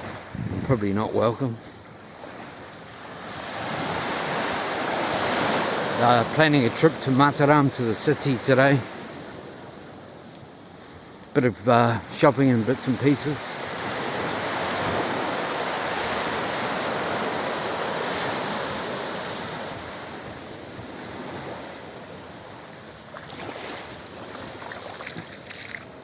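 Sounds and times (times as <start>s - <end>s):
wind on microphone: 0.0s - 1.0s
sea surf washing onto beach: 0.0s - 10.6s, 11.3s - 26.0s.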